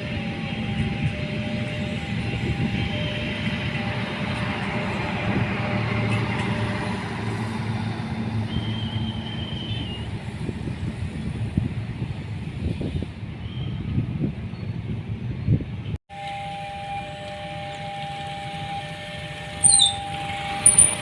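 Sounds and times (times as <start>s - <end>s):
train rumbling past: 0.0s - 21.0s
high squeal: 19.6s - 21.0s.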